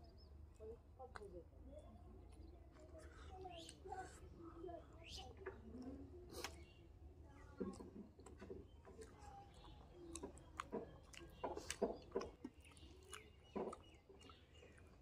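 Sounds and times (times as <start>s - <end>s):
person chewing with mouth smacks: 7.5s - 15.0s.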